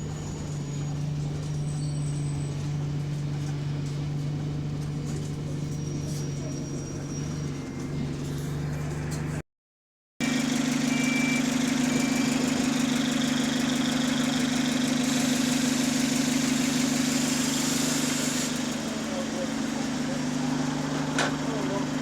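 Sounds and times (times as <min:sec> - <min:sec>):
diesel bus engine running: 0:00.0 - 0:09.4, 0:10.2 - 0:22.0
engine ticking: 0:10.2 - 0:22.0.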